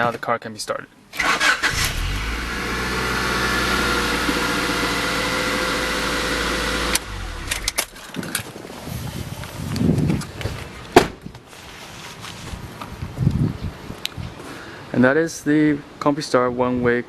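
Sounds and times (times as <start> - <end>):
car engine starting and idling: 1.1 - 8.2.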